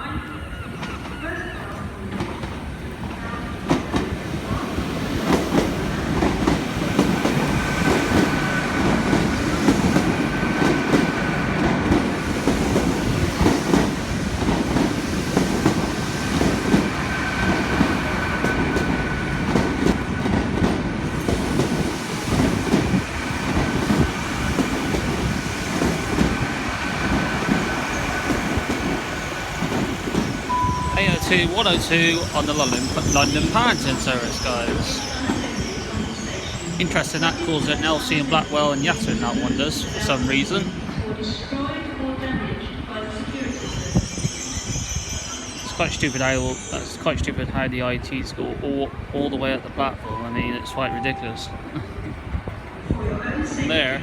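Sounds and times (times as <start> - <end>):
passing train rumble: 0.0 - 54.0
train wheels clacking over rails: 2.0 - 41.0.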